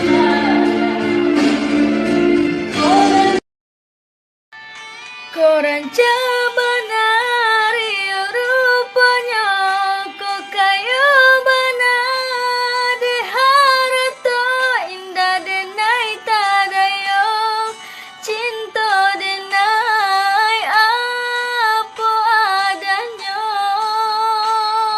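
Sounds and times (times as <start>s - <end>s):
woman singing slow melody: 0.0s - 1.3s, 2.7s - 3.4s, 5.3s - 24.9s.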